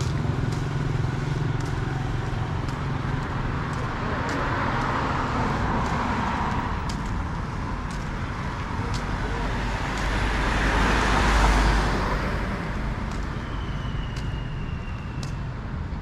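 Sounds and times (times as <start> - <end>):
vehicle passing: 0.0 - 15.3
vehicle engines running: 0.0 - 16.0.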